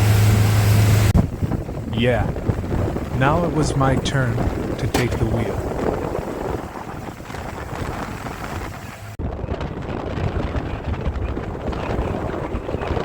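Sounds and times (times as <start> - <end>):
outboard motor rumble: 0.0 - 13.0
wind buffeting microphone: 1.0 - 13.0
water against boat hull: 4.4 - 9.2.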